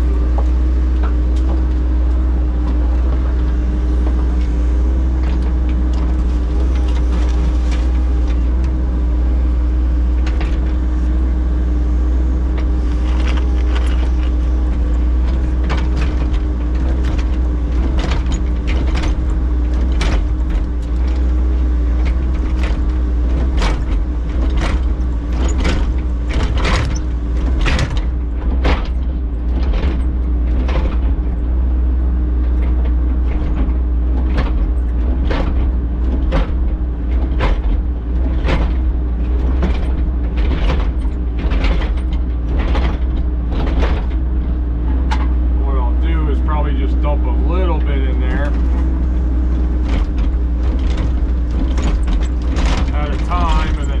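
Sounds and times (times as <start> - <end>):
diesel engine drone: 0.0 - 54.0.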